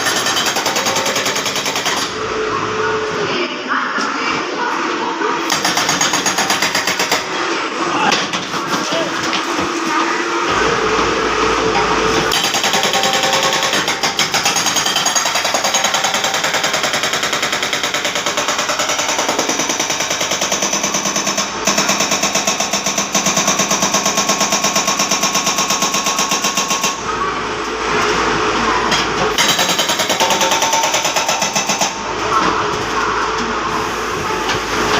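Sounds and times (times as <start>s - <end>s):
hydraulic breaker hammering: 11.6s - 27.0s.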